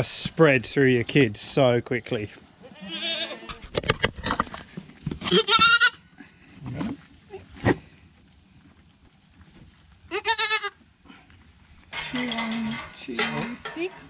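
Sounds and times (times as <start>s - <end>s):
goats bleating: 2.6s - 3.6s, 5.2s - 6.0s, 10.1s - 10.8s.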